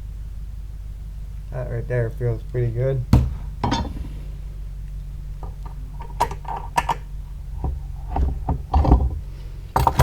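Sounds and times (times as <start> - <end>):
steady low hum: 0.0 - 10.0
metal knocks and clicks: 3.2 - 4.2, 5.4 - 9.2.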